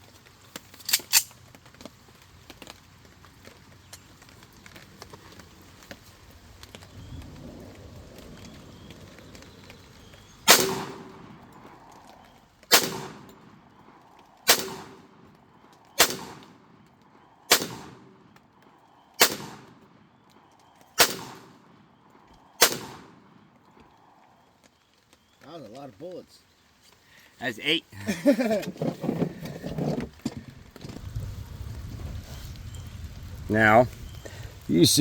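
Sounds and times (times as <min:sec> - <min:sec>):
pistol shots: 0:10.5 - 0:11.4, 0:12.7 - 0:13.5, 0:14.4 - 0:15.3, 0:16.0 - 0:16.8, 0:17.5 - 0:18.4, 0:19.2 - 0:20.0, 0:20.9 - 0:21.8, 0:22.6 - 0:23.4.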